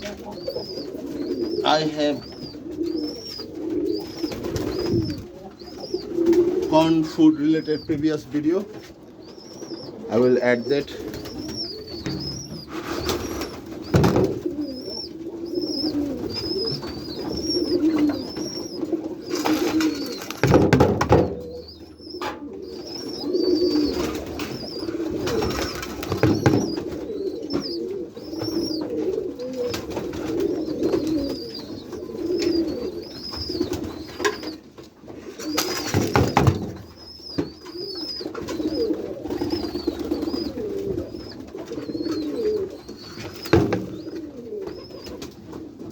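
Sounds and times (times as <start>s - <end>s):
pigeons cooing: 0.0s - 45.9s
wings rustling: 0.0s - 45.9s
high chirp: 9.2s - 14.0s, 14.6s - 20.4s, 21.5s - 26.8s, 30.6s - 34.6s, 35.4s - 44.1s.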